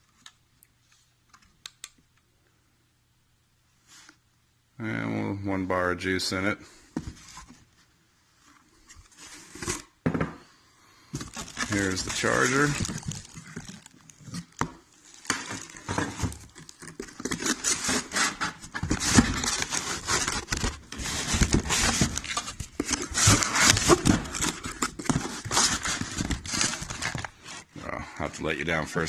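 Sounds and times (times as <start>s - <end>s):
packaging rustling and crinkling: 11.1s - 27.9s.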